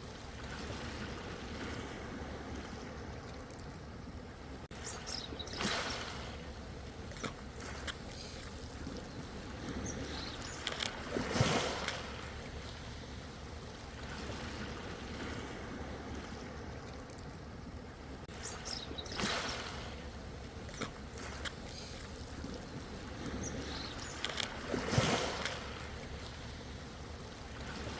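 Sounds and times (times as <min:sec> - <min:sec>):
ocean waves washing in: 0:00.0 - 0:27.9
small splashes and clicks: 0:02.6 - 0:03.8, 0:07.1 - 0:09.1, 0:10.2 - 0:12.2, 0:16.8 - 0:17.4, 0:20.7 - 0:22.8, 0:23.8 - 0:26.0.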